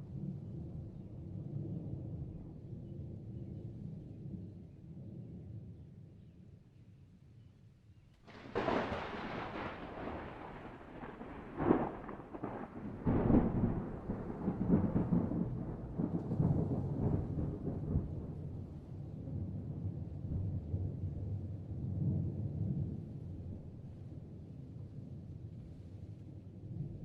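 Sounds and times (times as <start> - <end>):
thunder cracking and rumbling: 8.3 - 23.9.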